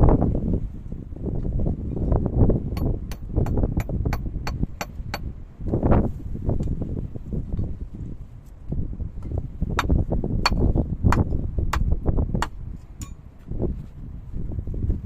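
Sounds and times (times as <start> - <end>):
hand tool striking: 2.7 - 5.3, 9.8 - 13.2.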